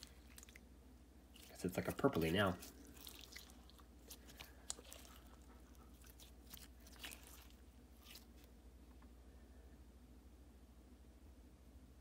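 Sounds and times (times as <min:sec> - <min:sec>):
wet slime squishing: 0:00.0 - 0:08.6.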